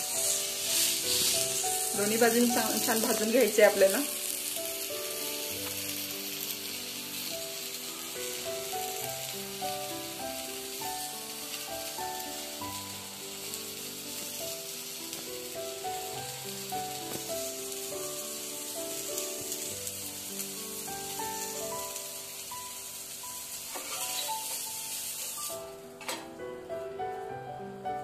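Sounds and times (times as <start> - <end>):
pancake sizzling in oil: 0.0 - 26.0
instrumental music: 0.0 - 28.0
metal spatula scraping pan: 23.7 - 24.7.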